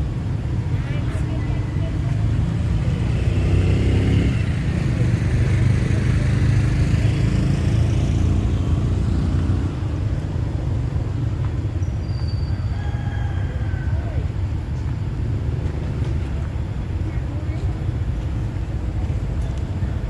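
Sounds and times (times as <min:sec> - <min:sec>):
motor vehicle running: 0:00.0 - 0:12.6, 0:13.7 - 0:20.0.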